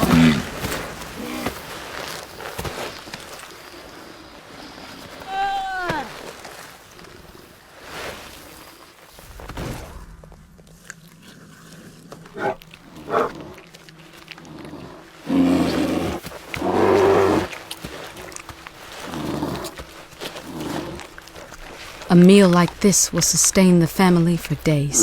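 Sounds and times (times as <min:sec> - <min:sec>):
animals snarling and growling: 0:00.0 - 0:02.6, 0:10.7 - 0:22.1.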